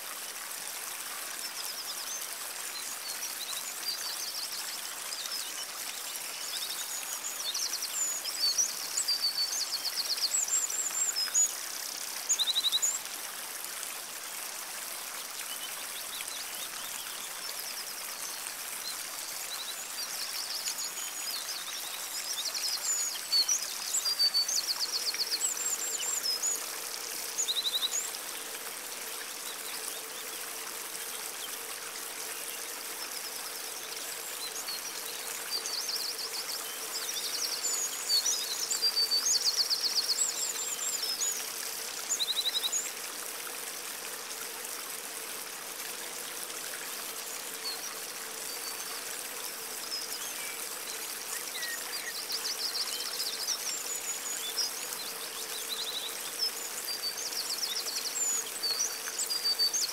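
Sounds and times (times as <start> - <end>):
songbirds singing: 15.4 - 42.9, 47.4 - 59.9.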